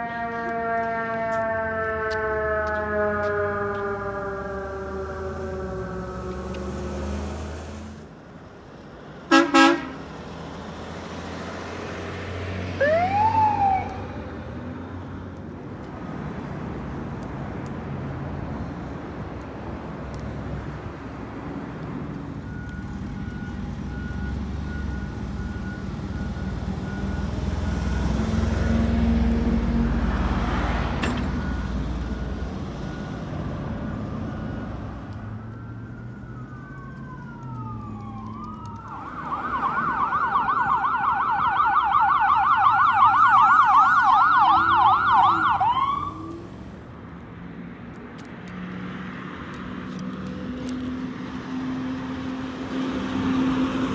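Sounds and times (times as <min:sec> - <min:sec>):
emergency siren yelping: 0:00.0 - 0:07.2, 0:11.9 - 0:14.6, 0:22.5 - 0:46.8
heavy vehicle passing: 0:00.0 - 0:08.2, 0:09.3 - 0:15.2, 0:24.4 - 0:47.8
road traffic: 0:00.0 - 0:53.9.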